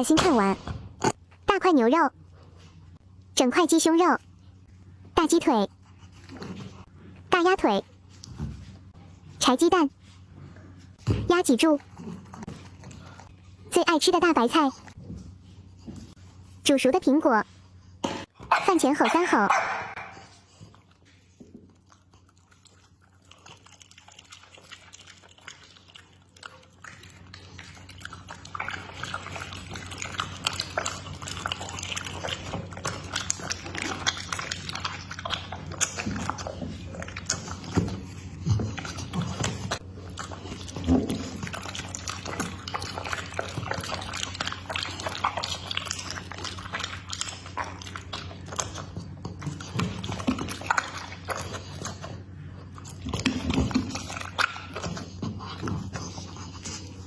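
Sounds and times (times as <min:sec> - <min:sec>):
dog chewing and crunching food: 0:00.0 - 0:57.0.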